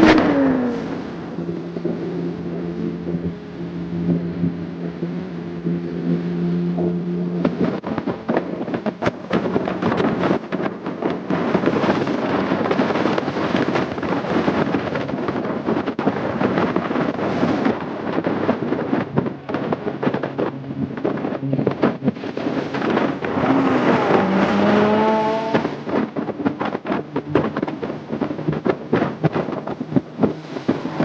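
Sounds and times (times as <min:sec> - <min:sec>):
motorcycle engine running: 0:00.0 - 0:31.0
wind buffeting microphone: 0:00.0 - 0:31.0.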